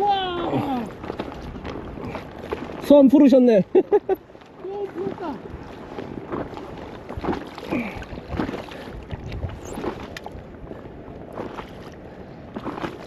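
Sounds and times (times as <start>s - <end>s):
water lapping against hull: 0.0s - 13.0s
wind buffeting microphone: 4.8s - 13.0s.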